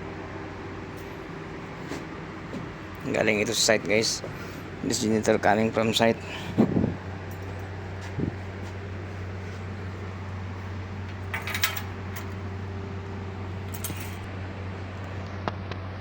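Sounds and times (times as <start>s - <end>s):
steady low hum: 0.0s - 16.0s
metal parts clinking: 11.2s - 12.4s, 13.7s - 14.3s.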